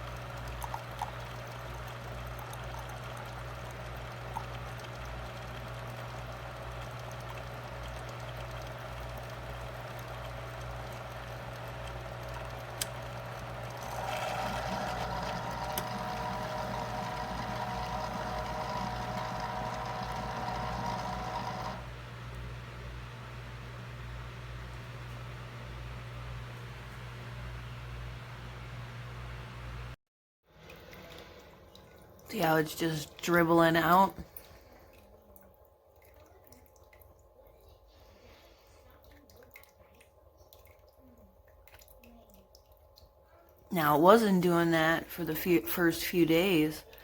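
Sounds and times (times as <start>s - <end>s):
liquid trickling: 0.0s - 21.8s, 30.5s - 43.6s
coffee maker whirring: 0.0s - 27.7s, 32.3s - 34.2s
coffee maker hum: 0.0s - 30.0s, 32.3s - 34.7s
coffee maker click: 13.9s - 21.8s.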